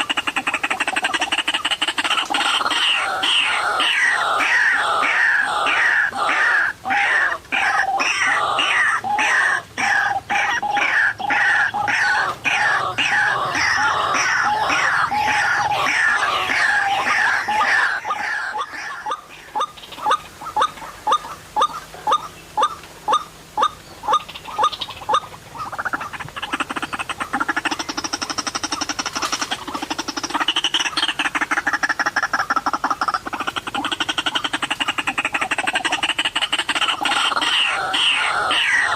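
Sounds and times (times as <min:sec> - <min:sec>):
waterhen calling harshly: 0:00.0 - 0:38.9.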